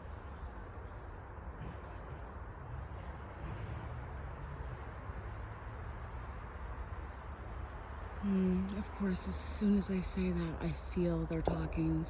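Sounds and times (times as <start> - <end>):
small songbirds chirping: 0.0 - 12.0
low background rumble: 7.4 - 12.0.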